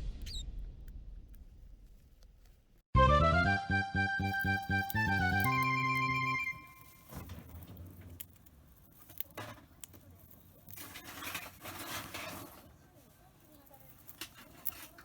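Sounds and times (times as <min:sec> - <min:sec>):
soft rustling and scraping: 0:06.7 - 0:15.0.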